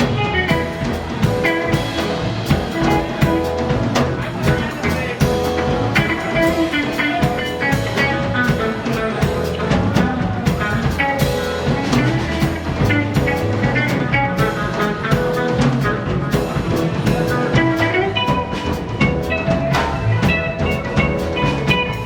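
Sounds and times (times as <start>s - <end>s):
drum kit beat: 0.0s - 22.0s
electric guitars and bass: 0.0s - 22.0s.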